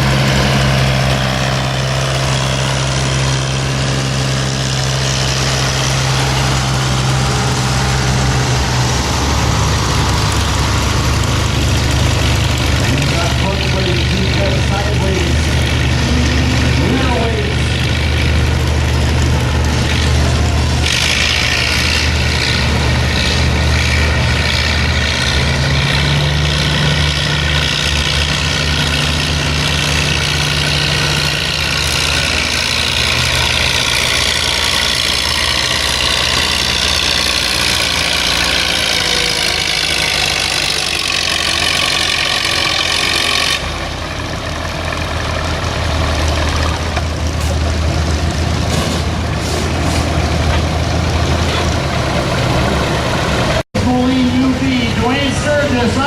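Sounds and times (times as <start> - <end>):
tractor engine revving under load: 0.0 - 56.0.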